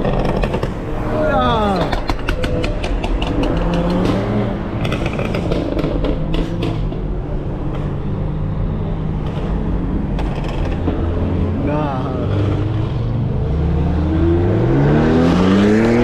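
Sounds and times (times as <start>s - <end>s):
exhaust crackling pops: 0.0s - 7.1s
engine humming: 0.0s - 14.8s.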